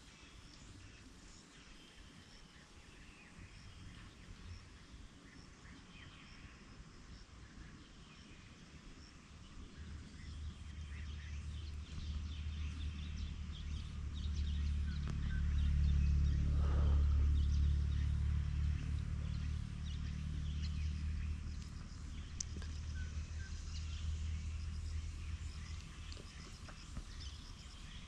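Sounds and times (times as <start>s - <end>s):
small birds chirping: 0.0s - 28.0s
low hum: 8.6s - 28.0s.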